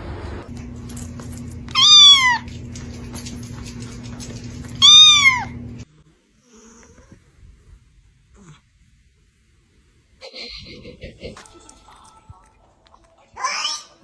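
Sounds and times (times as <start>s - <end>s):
cat meowing: 1.7s - 2.5s, 4.8s - 5.6s.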